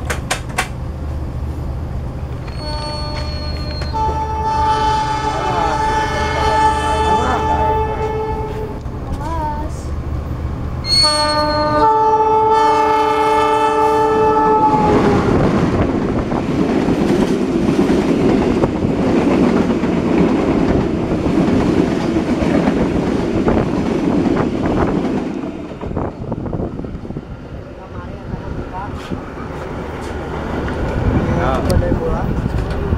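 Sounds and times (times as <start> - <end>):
wheels clicking over rail joints: 0.0 - 0.8
passenger train passing: 0.0 - 32.9
locomotive horn: 2.5 - 8.8, 10.9 - 15.5.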